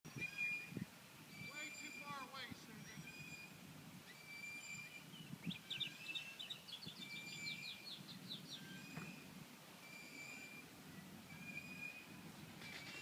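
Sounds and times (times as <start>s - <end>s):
songbird trill: 0.1s - 13.0s
thin whistled bird calls: 0.1s - 13.0s.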